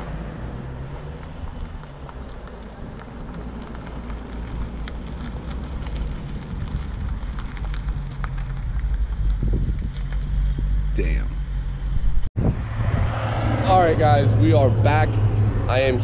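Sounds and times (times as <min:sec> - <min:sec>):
vehicle engine running: 0:00.0 - 0:12.3
light ticks and crackles: 0:00.9 - 0:10.6.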